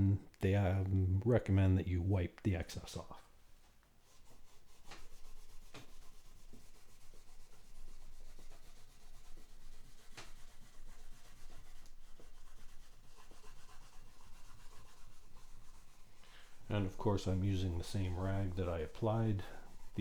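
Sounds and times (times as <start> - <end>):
cloth rubbing guitar fretboard: 4.1 - 20.0.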